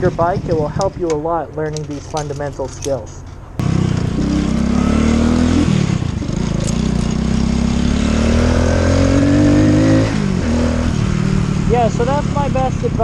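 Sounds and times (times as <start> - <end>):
motorcycle engine revving: 3.6 - 13.0.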